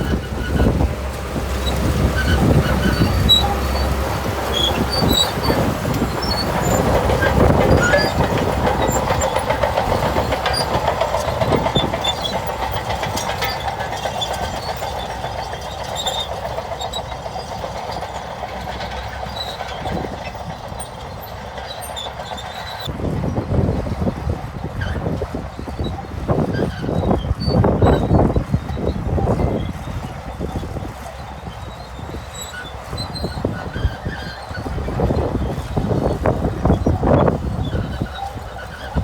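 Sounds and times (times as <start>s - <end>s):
bulldozer diesel engine: 0.0s - 39.0s
steel tracks clattering: 0.0s - 39.0s.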